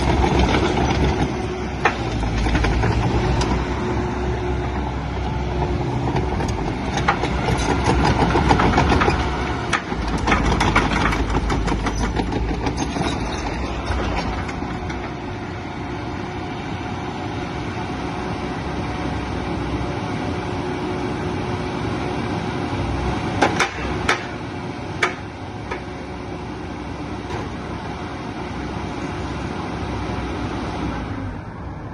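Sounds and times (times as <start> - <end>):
diesel excavator engine idling: 0.0 - 31.9
metallic clanks: 6.9 - 15.2.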